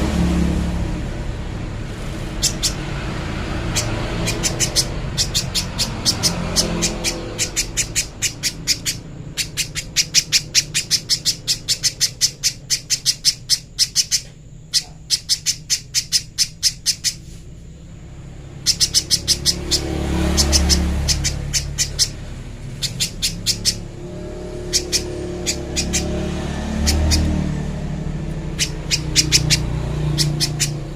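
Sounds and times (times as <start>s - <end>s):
bird calling sharp high notes: 2.3s - 17.3s, 18.5s - 30.9s
low rumble: 20.8s - 30.9s.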